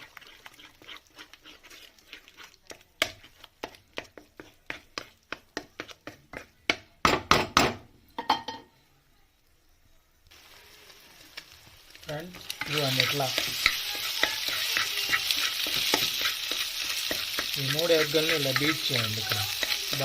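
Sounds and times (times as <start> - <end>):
utensil beating eggs in pan: 0.0 - 6.9, 11.9 - 20.0.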